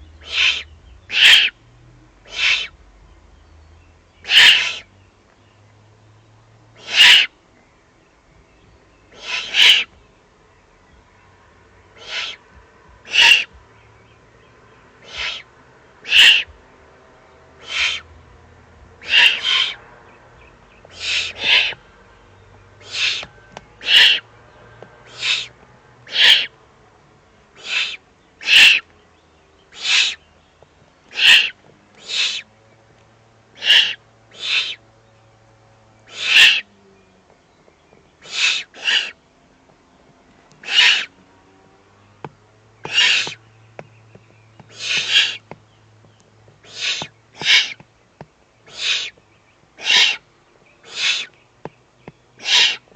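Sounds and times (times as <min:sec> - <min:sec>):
owl chicks hissing calls: 0:00.0 - 0:01.6, 0:02.2 - 0:02.8, 0:04.2 - 0:04.9, 0:06.8 - 0:07.4, 0:09.1 - 0:10.0, 0:11.9 - 0:13.6, 0:15.0 - 0:16.6, 0:17.6 - 0:18.2, 0:19.0 - 0:19.8, 0:20.7 - 0:21.8, 0:22.8 - 0:24.3, 0:25.0 - 0:26.6, 0:27.5 - 0:28.9, 0:29.6 - 0:30.4, 0:31.0 - 0:32.6, 0:33.5 - 0:34.9, 0:36.0 - 0:36.7, 0:38.2 - 0:39.2, 0:40.6 - 0:41.2, 0:42.8 - 0:43.5, 0:44.6 - 0:45.6, 0:46.5 - 0:47.9, 0:48.6 - 0:52.9.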